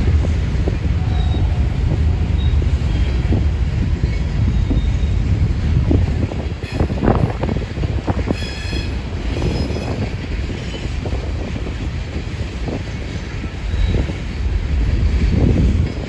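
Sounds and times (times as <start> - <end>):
high wheel squeal: 8.3 - 10.0.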